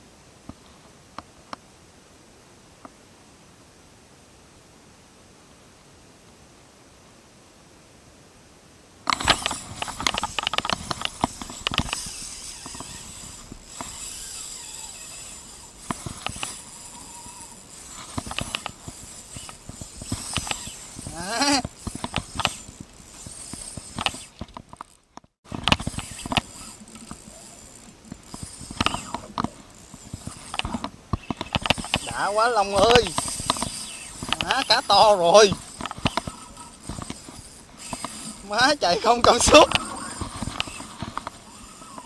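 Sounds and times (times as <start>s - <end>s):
fishing reel clicking: 9.1s - 25.0s, 25.6s - 42.0s.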